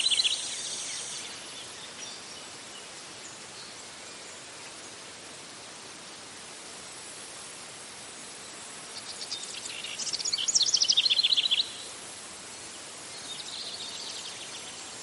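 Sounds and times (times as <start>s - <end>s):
songbird singing: 0.0s - 6.3s, 8.0s - 15.0s
insects hissing: 0.0s - 15.0s.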